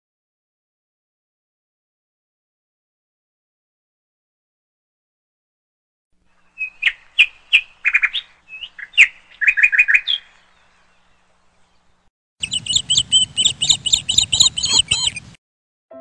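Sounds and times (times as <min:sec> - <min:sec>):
birds chirping: 0:06.3 - 0:15.4.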